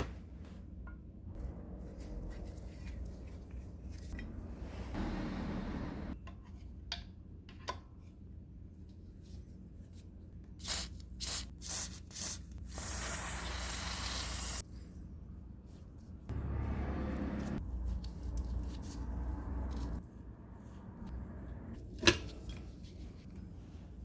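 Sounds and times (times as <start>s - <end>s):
aerosol can spraying: 10.6s - 14.6s.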